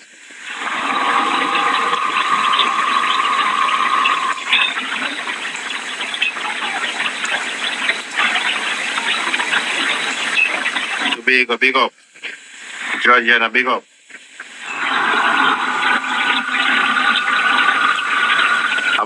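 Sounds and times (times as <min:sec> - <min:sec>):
steady high tone: 0:00.4 - 0:09.0.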